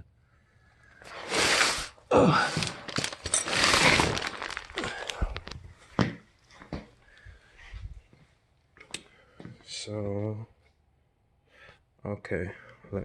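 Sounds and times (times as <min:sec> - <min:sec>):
loud rustling and scraping: 0:01.0 - 0:05.0.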